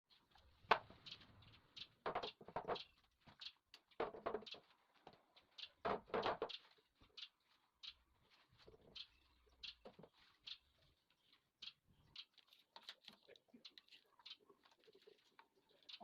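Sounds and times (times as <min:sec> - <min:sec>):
wooden pieces knocking and scraping: 0:02.0 - 0:06.6.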